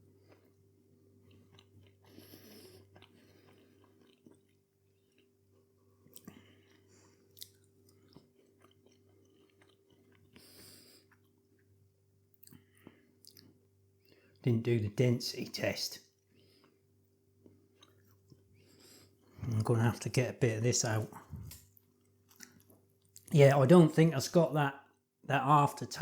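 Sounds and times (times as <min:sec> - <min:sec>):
chewing food: 0:00.1 - 0:14.4, 0:16.2 - 0:19.6, 0:21.1 - 0:23.4.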